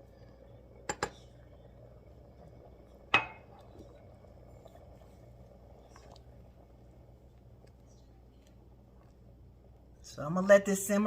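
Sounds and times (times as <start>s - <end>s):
spoon clinking against pot: 3.2s - 3.4s.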